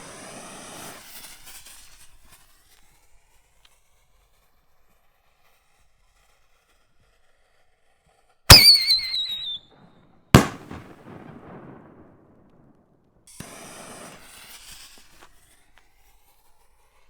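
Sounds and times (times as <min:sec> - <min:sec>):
firework shell bangs: 0:08.5 - 0:09.6, 0:10.4 - 0:12.5
falling whistle: 0:08.5 - 0:09.7
long rumbling echo: 0:10.4 - 0:12.5.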